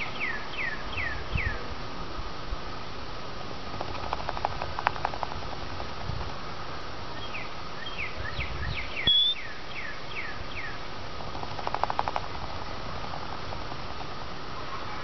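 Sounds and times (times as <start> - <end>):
bird chirping: 0.0 - 1.6, 7.1 - 10.8
bird whistle: 7.2 - 10.8.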